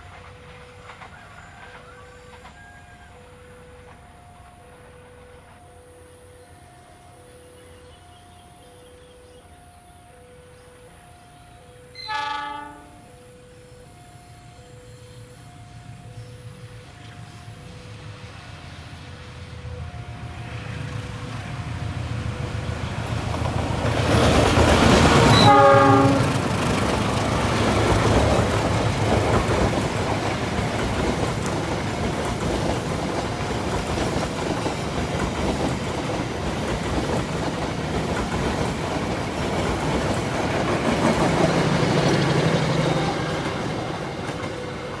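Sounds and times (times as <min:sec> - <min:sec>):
wheels clattering on rails: 0:00.0 - 0:05.8, 0:15.9 - 0:45.0
passenger train passing: 0:00.0 - 0:45.0
train horn blast: 0:11.8 - 0:13.5, 0:24.8 - 0:28.5.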